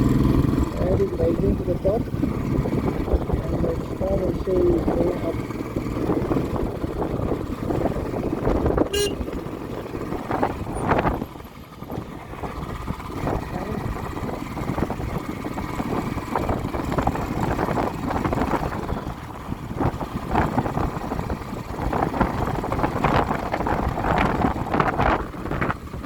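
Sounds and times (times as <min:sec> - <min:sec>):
vehicle engine and road rumble: 0:00.0 - 0:26.0
short beep: 0:08.9 - 0:09.3.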